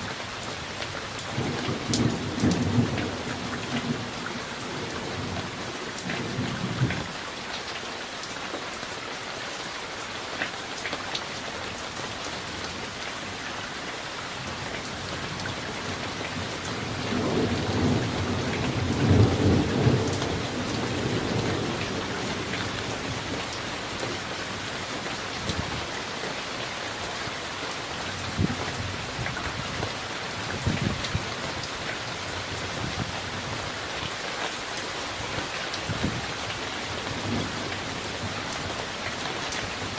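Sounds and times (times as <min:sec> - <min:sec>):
steady rain: 0:00.0 - 0:39.9
thunder rumbling: 0:01.4 - 0:07.1, 0:15.1 - 0:24.2.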